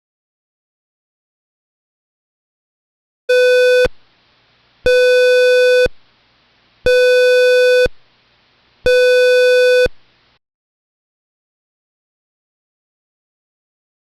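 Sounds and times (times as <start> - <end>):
buzzy square-wave beeps: 3.3 - 3.9, 6.9 - 7.9, 8.9 - 9.9.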